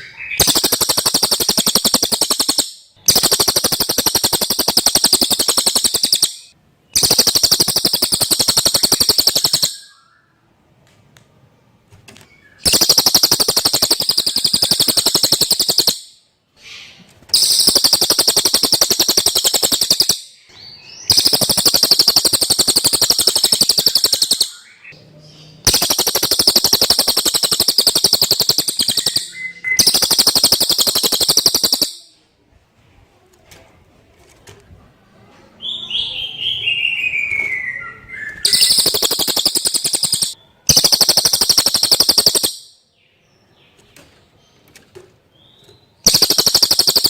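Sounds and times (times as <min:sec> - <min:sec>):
bird high-pitched trills: 0:00.0 - 0:10.4, 0:12.4 - 0:16.2, 0:17.4 - 0:25.0, 0:25.6 - 0:32.2, 0:35.9 - 0:42.9, 0:45.6 - 0:47.0.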